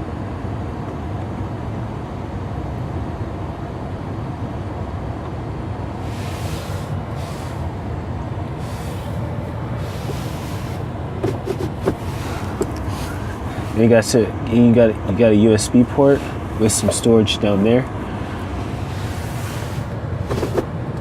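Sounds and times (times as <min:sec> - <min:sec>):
pickup engine idling: 0:05.0 - 0:21.0
short bursts of hiss: 0:06.0 - 0:07.7, 0:08.6 - 0:09.2.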